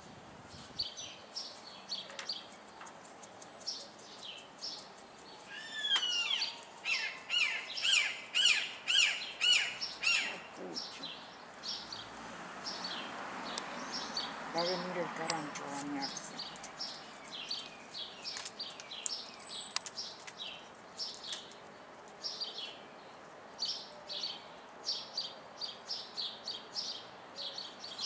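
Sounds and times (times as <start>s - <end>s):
birds chirping: 0.6s - 28.0s
bird repeated arched notes: 5.6s - 11.1s.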